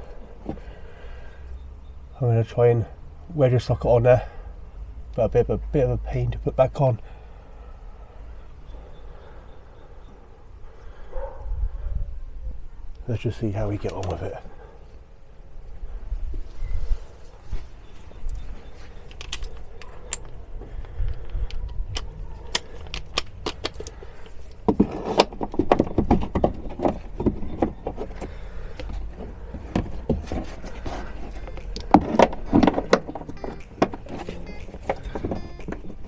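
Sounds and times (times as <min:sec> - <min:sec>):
metal hand tools clinking: 0:19.0 - 0:20.5.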